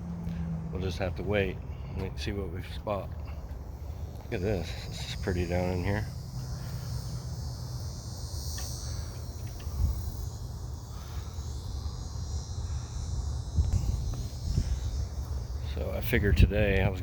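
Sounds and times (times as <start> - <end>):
insects droning: 0.0 - 17.0
low microphone rumble: 13.4 - 17.0.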